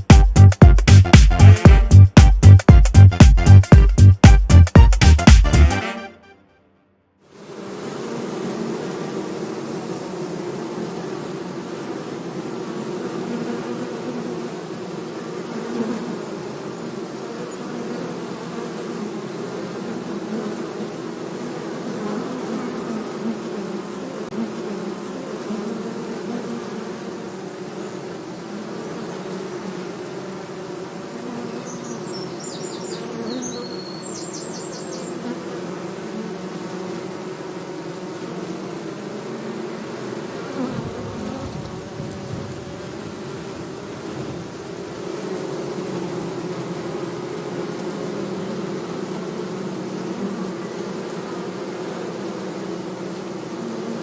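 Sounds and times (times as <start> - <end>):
bees buzzing: 0.0 - 6.4, 7.3 - 54.0.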